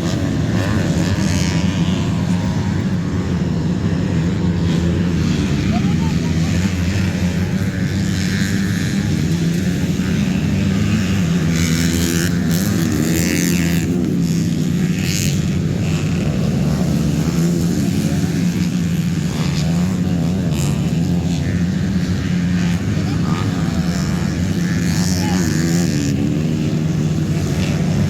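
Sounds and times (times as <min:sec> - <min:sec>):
dirt bike engines revving: 0:00.0 - 0:28.0
low engine drone: 0:00.0 - 0:28.0.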